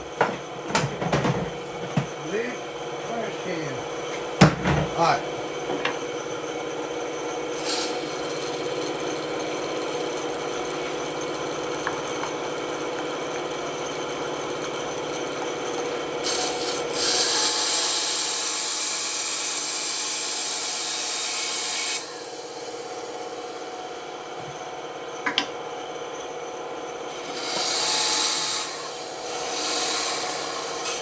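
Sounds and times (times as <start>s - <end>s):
band saw motor hum: 0.0s - 31.0s
saw blade rasping through wood: 13.6s - 22.2s.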